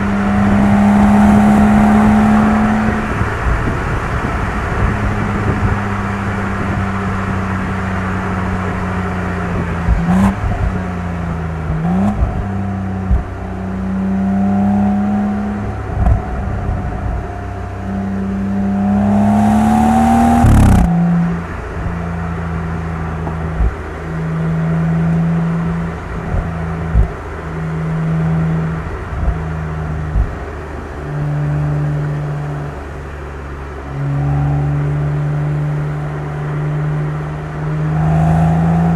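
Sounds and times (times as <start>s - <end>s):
car engine and exhaust accelerating: 0.0s - 38.9s
exhaust cracks: 18.8s - 22.0s.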